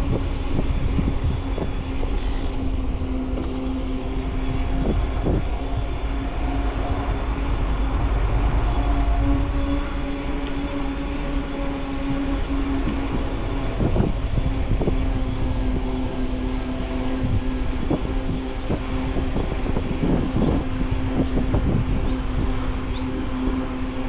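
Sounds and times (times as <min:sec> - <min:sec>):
wind rumble on microphone: 0:00.0 - 0:24.0
electric bike motor whining: 0:00.8 - 0:05.4
bike knocking and rattling: 0:02.0 - 0:03.6.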